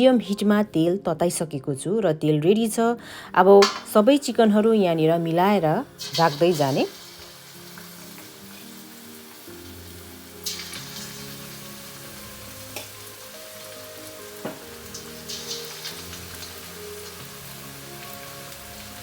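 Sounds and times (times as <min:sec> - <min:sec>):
chicken sizzling in hot oil: 0:05.5 - 0:19.0
oil crackling and spattering: 0:10.4 - 0:11.4, 0:14.9 - 0:16.6.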